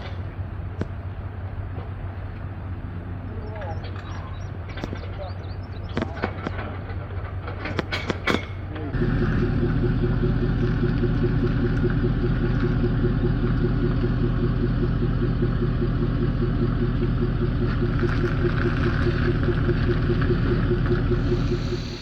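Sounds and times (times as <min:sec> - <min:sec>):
engine running with pulsing beat: 0:09.0 - 0:22.0.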